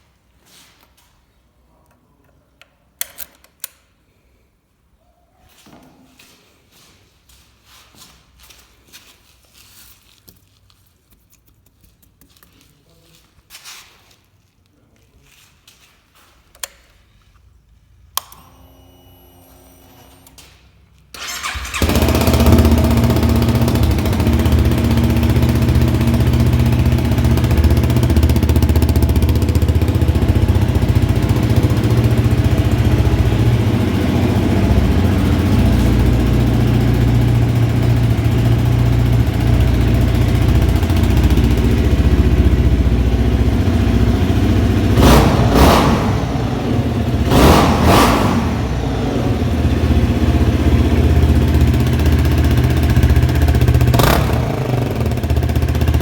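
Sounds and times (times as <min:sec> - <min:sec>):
motorcycle engine idling loudly: 0:21.3 - 0:56.0.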